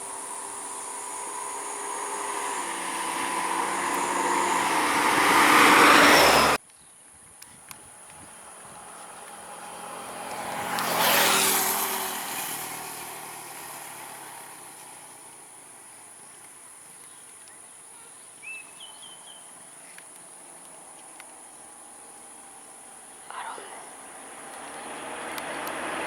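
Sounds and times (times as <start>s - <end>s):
high insect buzz: 0.0s - 6.6s, 8.5s - 26.0s
vehicle driving past: 0.0s - 6.6s, 8.3s - 15.6s, 21.8s - 26.0s.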